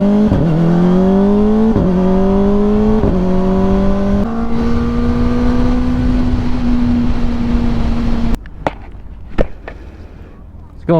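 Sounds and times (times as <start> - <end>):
motorcycle engine accelerating: 0.0 - 8.4.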